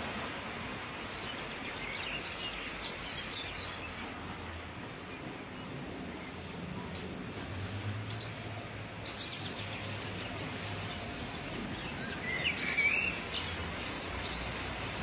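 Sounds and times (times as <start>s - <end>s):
birds chirping: 8.0s - 15.0s.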